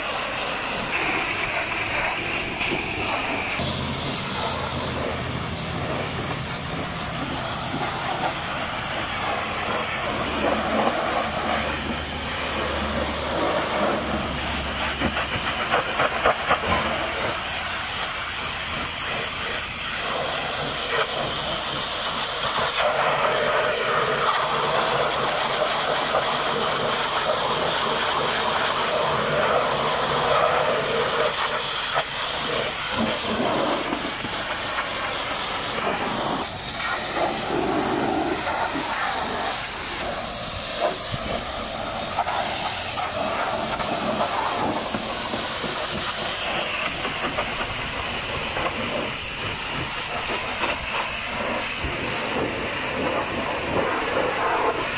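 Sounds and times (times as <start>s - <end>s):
pressure washer jet spraying: 0.0s - 54.9s.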